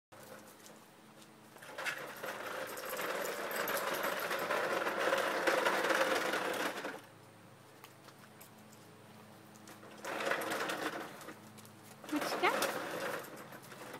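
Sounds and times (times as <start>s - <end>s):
toy truck rattling: 1.6s - 7.1s, 9.8s - 13.9s.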